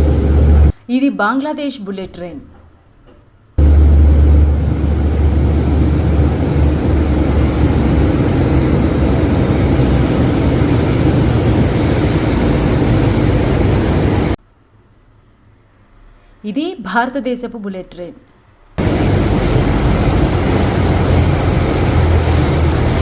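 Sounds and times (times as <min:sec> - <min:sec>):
train running at speed: 0:00.0 - 0:00.7, 0:03.6 - 0:14.4, 0:18.8 - 0:23.0.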